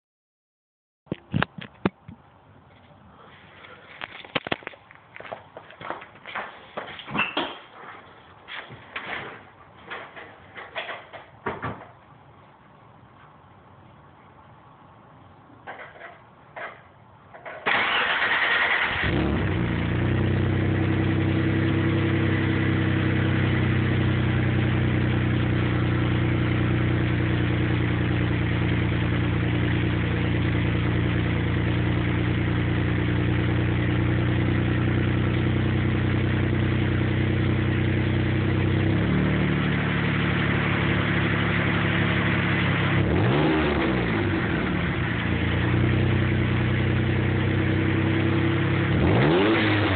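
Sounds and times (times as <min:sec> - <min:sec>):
car engine starting and idling: 0:17.6 - 0:49.9.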